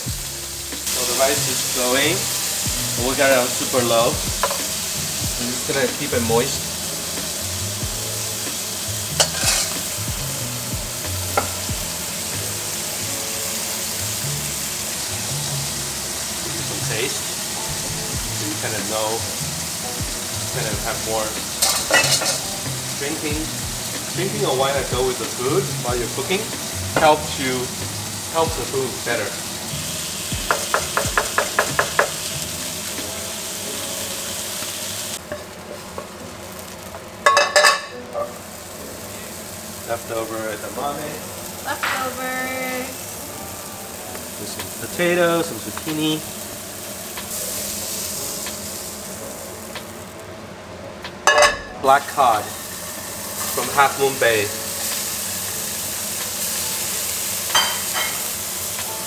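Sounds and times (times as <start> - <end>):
squid sizzling in oil: 0.0 - 59.0
utensils knocking against pans: 4.2 - 4.7, 9.2 - 9.9, 21.6 - 22.5, 30.4 - 32.3, 37.2 - 38.3, 51.2 - 51.8, 57.5 - 58.3.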